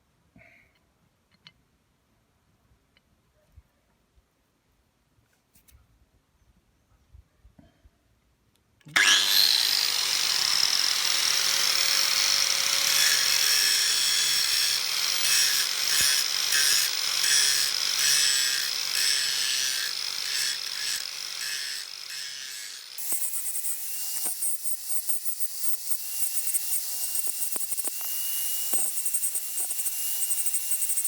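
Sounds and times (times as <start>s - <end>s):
rotary power tool whining on metal: 9.0s - 31.0s.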